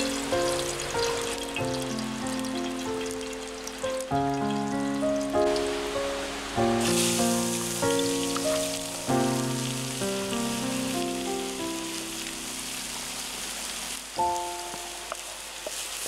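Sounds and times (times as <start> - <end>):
plucked background music: 0.0 - 12.6
vegetables sizzling in oil: 0.0 - 16.0.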